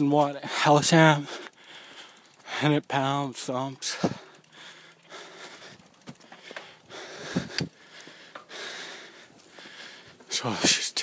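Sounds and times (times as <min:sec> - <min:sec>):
person breathing hard and sniffing: 0:01.3 - 0:02.5, 0:04.0 - 0:10.3.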